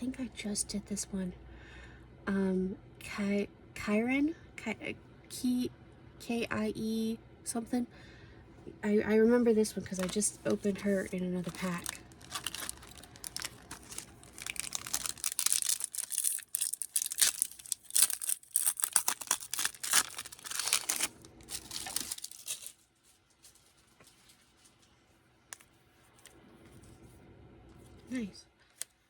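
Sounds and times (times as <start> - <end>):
plastic wrapping crackling and tearing: 9.9 - 24.9.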